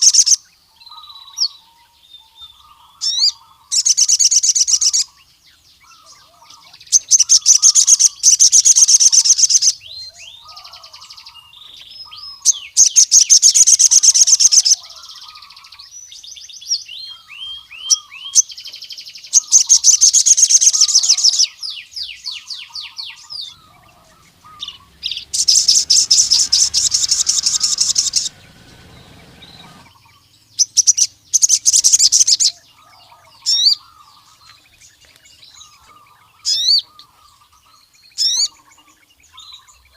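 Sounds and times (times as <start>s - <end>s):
bird singing fast high trills: 22.6s - 32.6s
bird chirps and sliding notes: 23.3s - 30.1s.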